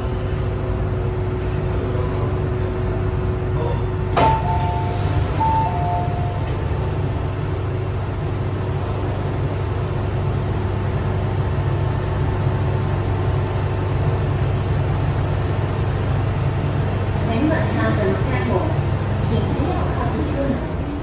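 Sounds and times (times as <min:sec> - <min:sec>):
train low hum: 0:00.0 - 0:21.0.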